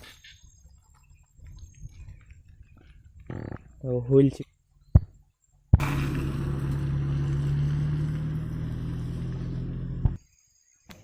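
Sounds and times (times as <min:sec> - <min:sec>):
motor humming: 0:05.8 - 0:10.2.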